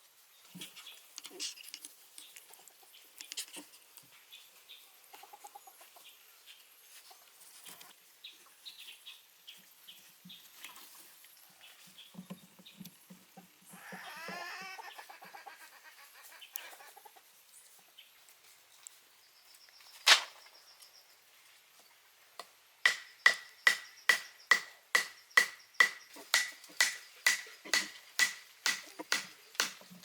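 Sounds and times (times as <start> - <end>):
faint high cries: 13.7 - 16.1
sharp ringing knocks: 22.9 - 29.8.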